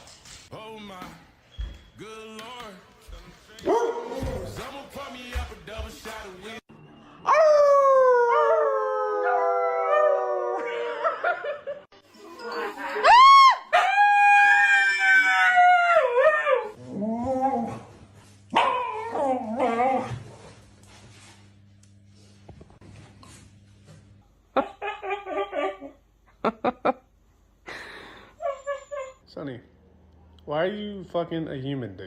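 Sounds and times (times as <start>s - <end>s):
dog howling: 7.2s - 11.3s, 13.0s - 17.9s, 18.6s - 20.1s.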